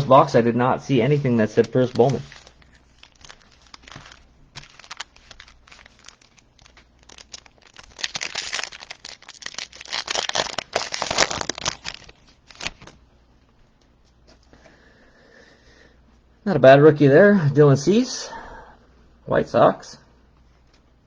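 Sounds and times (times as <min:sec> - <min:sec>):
card pack wrapper crinkling: 0:01.4 - 0:13.0.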